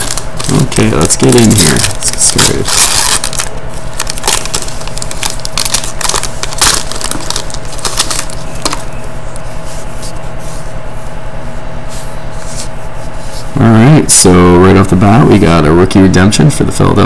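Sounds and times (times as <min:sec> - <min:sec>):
wrapper tearing and crinkling: 0:00.0 - 0:08.9
cards rustling: 0:00.0 - 0:10.6.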